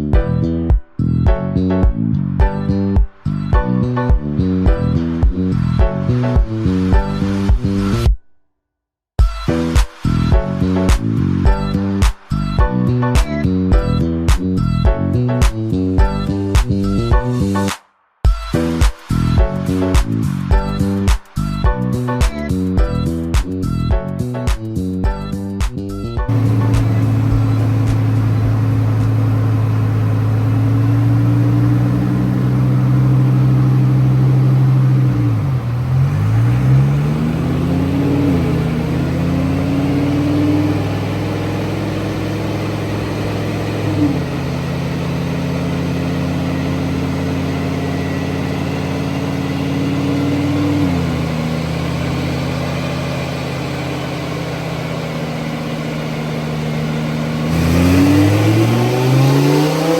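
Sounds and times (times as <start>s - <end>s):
car engine running: 26.3s - 59.9s.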